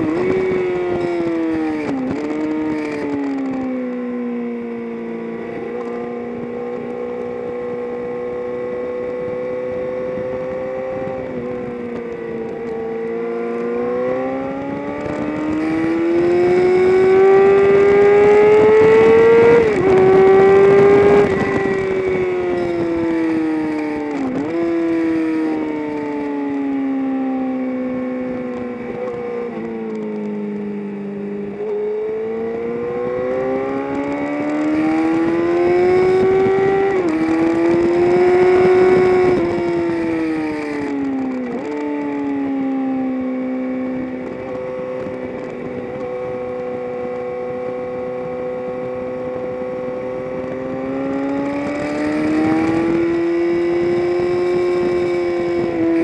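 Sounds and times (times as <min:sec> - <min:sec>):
race car engine revving: 0:12.3 - 0:25.7, 0:50.1 - 0:56.0.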